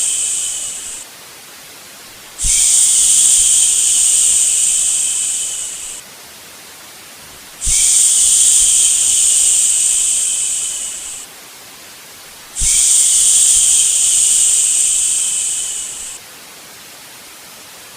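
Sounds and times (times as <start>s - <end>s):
person shushing: 0.0s - 1.0s, 2.4s - 6.0s, 7.6s - 11.3s, 12.6s - 16.2s
white noise hiss: 0.0s - 17.9s.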